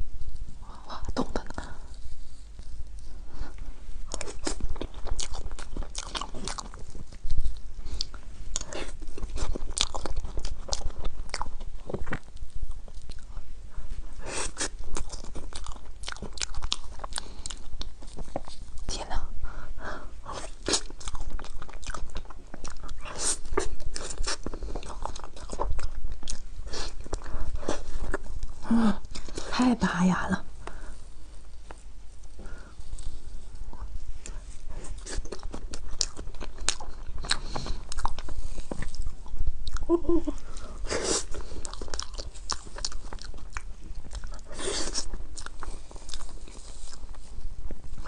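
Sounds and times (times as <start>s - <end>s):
wet chewing: 2.6s - 13.5s, 14.4s - 18.9s, 20.3s - 29.5s, 31.5s - 48.0s
crunchy dessert crunching: 4.1s - 13.4s, 14.4s - 18.9s, 20.3s - 29.4s, 33.0s - 39.9s, 40.6s - 47.3s.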